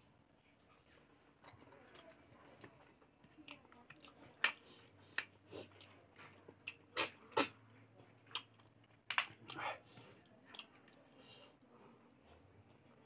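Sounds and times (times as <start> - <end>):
chewing and wet mouth smacks: 5.2 - 7.6, 8.2 - 9.7.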